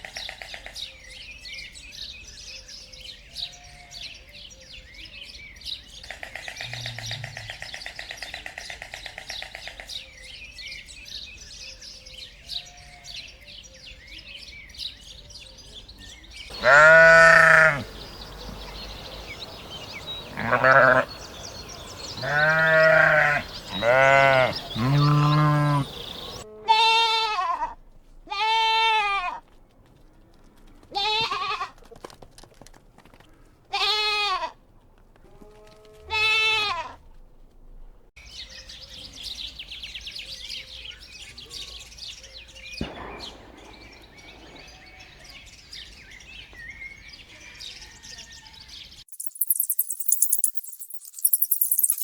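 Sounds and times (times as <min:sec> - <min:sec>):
faint background hiss: 0:16.5 - 0:26.4
goat or sheep bleating: 0:16.5 - 0:29.4, 0:30.9 - 0:31.8, 0:33.7 - 0:34.6, 0:35.4 - 0:37.0
bright jingling rattle: 0:49.1 - 0:52.0.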